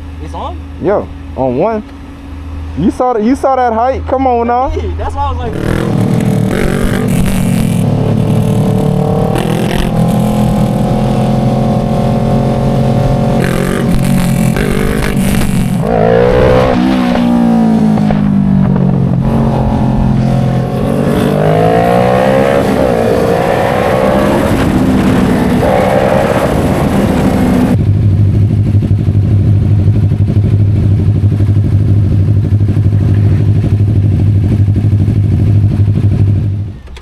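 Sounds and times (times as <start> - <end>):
motorcycle engine revving: 4.7 - 37.0
wind rush: 5.5 - 29.6.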